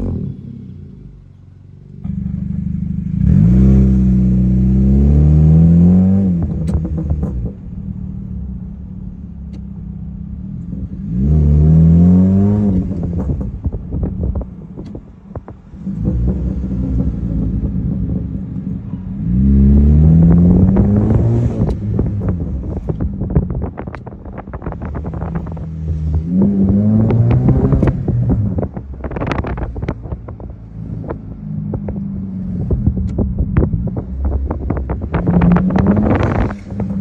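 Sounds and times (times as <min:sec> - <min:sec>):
car engine revving: 0:00.0 - 0:37.0
exhaust pops and crackles: 0:06.3 - 0:07.9, 0:12.7 - 0:19.0, 0:20.3 - 0:37.0.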